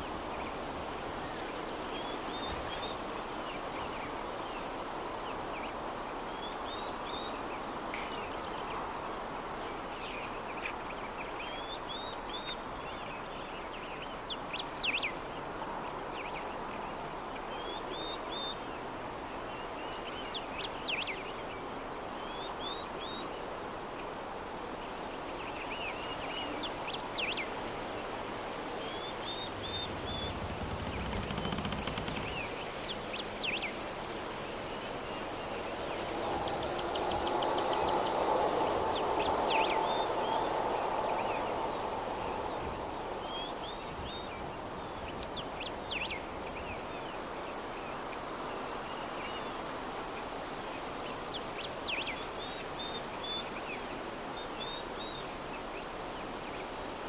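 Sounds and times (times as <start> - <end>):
soft breeze: 0.0 - 57.0
small birds chirping: 28.6 - 33.8
low rumble: 29.4 - 32.6.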